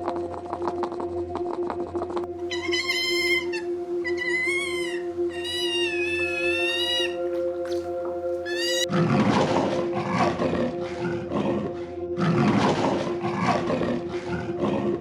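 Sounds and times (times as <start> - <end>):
background music with held notes: 0.0 - 15.0
cat meowing: 2.5 - 7.3, 8.5 - 8.9
large wild animal roaring: 8.6 - 15.0.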